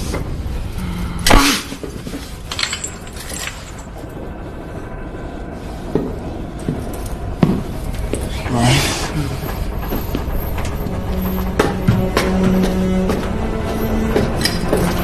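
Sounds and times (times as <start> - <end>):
steady low hum: 0.0 - 15.0
metallic clinks and knocks: 2.4 - 4.0.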